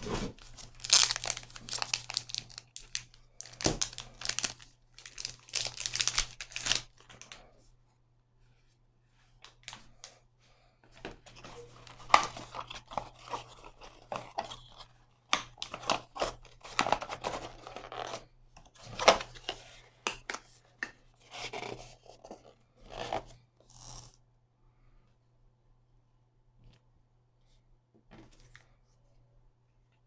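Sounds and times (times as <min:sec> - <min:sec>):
packaging rustling and rubbing: 0:00.0 - 0:07.2
packaging tearing: 0:00.4 - 0:07.0.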